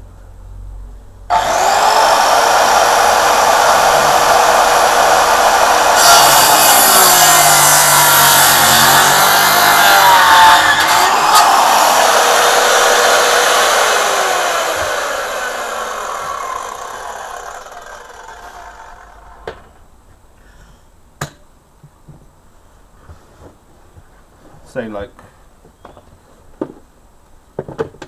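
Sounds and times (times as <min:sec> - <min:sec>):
power saw motor winding down: 0:01.3 - 0:19.7.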